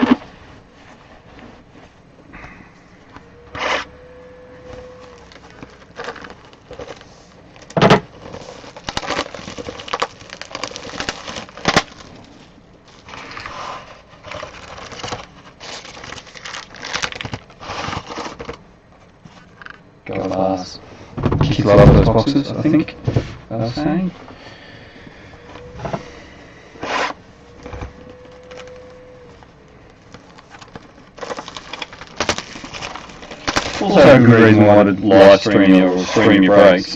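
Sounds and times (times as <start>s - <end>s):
card packaging crackling and tearing: 3.4s - 18.6s, 26.8s - 34.7s.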